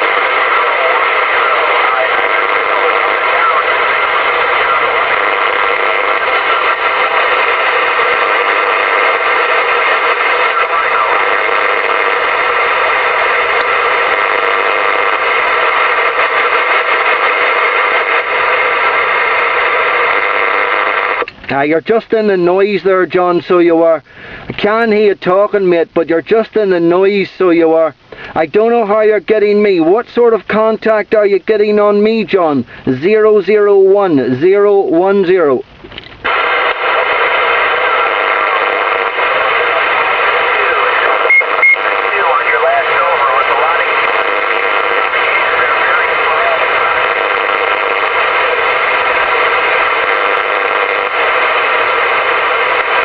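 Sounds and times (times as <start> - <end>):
radio static hiss: 0.0 - 53.0.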